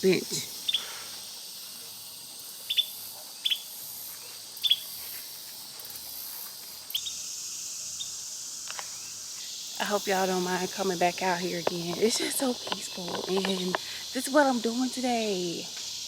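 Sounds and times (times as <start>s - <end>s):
bird chirping: 0.0s - 1.0s, 2.6s - 4.9s, 6.9s - 7.2s
insects droning: 0.0s - 16.0s.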